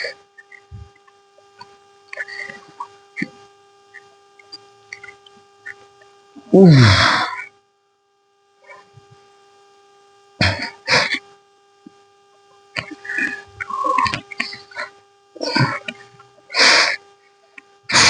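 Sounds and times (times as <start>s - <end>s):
electrical hum: 0.0s - 18.0s
man groaning with effort: 6.4s - 7.5s, 10.4s - 11.2s, 12.8s - 16.0s.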